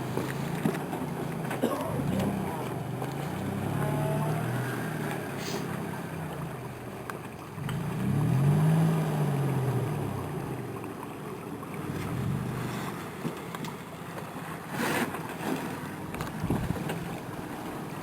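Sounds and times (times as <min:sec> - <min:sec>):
off-road vehicle engine revving: 0:00.0 - 0:06.8, 0:07.6 - 0:10.8, 0:11.8 - 0:13.3.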